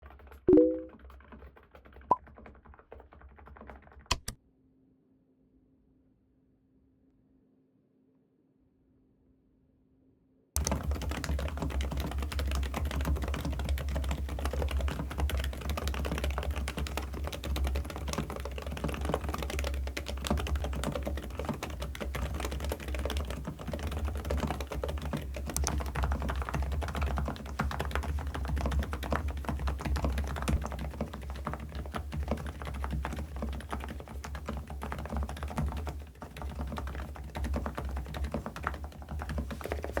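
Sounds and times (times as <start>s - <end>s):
muted mechanical keyboard typing: 0.0s - 4.4s, 10.6s - 40.0s.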